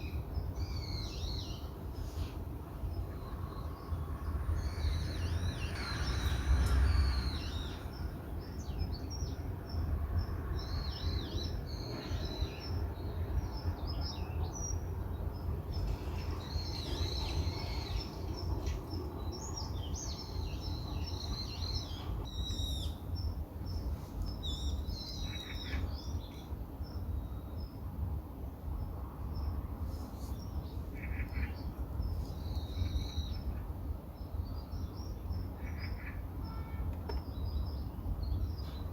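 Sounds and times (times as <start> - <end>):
birds chirping and twittering: 0.0 - 38.9
steady low rumble: 1.5 - 12.0.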